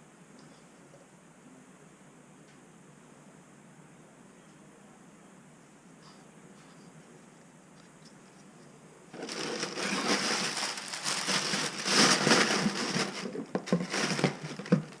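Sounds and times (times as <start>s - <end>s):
packaging crinkling: 9.2s - 15.0s.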